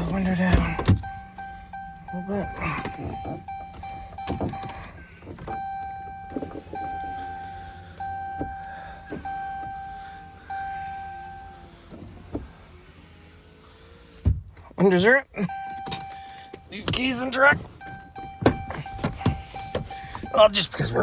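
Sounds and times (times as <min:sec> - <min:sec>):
truck warning chime dinging: 0:00.0 - 0:12.5, 0:15.1 - 0:21.0
clicks and knocks in cab: 0:00.4 - 0:01.2, 0:02.7 - 0:07.2, 0:15.5 - 0:20.4.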